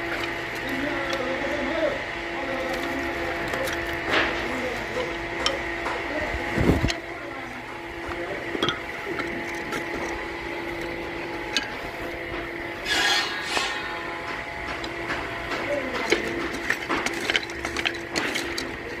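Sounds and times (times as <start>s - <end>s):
knocks and clinks of wood and tools: 0.0s - 1.4s, 2.5s - 6.1s, 7.9s - 19.0s
machine humming: 0.0s - 19.0s
scraping rasp: 12.8s - 14.1s.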